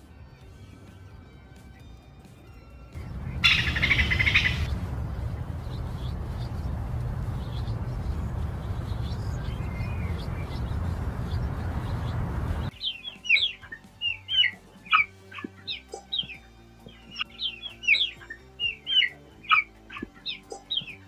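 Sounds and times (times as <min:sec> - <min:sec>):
small birds chirping: 0:00.5 - 0:21.0
steady rushing noise: 0:03.0 - 0:12.8.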